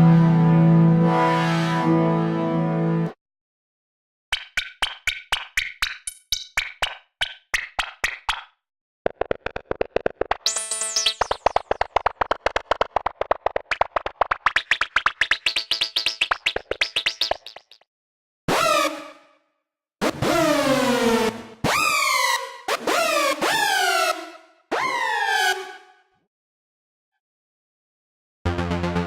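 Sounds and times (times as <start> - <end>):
synthesizer short notes: 28.5 - 29.0.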